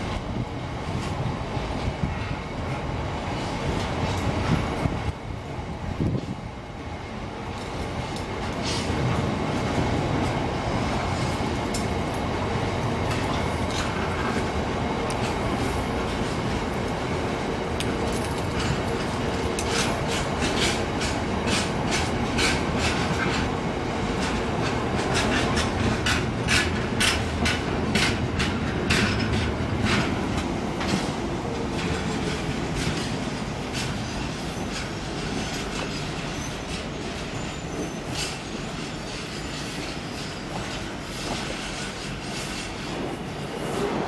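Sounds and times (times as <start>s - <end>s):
freight wagons wheels clicking: 11.1s - 38.4s.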